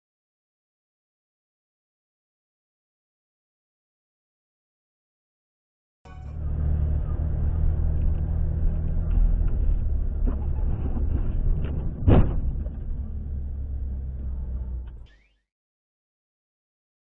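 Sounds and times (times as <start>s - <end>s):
car engine and road noise: 6.1s - 15.1s
loud thump: 10.3s - 13.2s.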